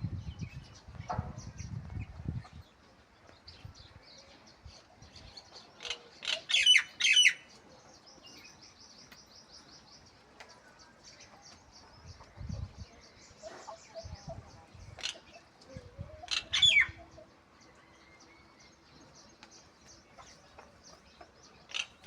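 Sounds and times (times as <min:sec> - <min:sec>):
birds chirping: 0:00.1 - 0:22.0
sharp high bird calls: 0:05.8 - 0:07.5, 0:16.3 - 0:17.0.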